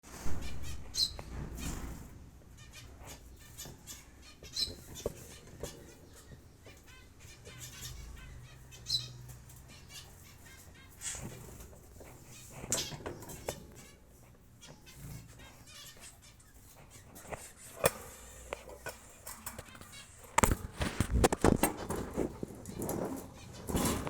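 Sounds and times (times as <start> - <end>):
scratching and rustling: 0.0 - 24.0
wing flapping: 19.2 - 24.0.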